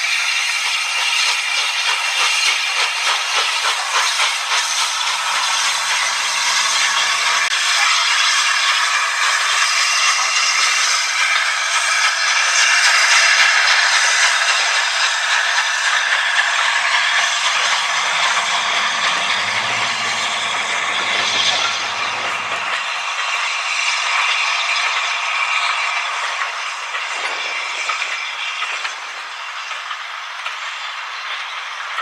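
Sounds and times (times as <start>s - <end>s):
train wheels on rails: 0.0s - 32.0s
low hum: 16.9s - 23.2s.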